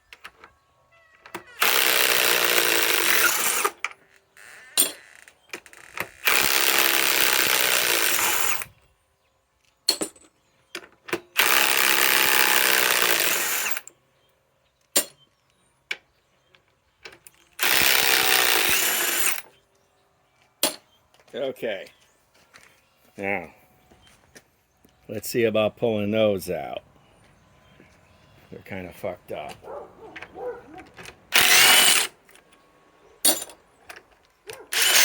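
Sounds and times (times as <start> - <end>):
impact wrench hammering: 31.3 - 32.1, 34.8 - 35.0.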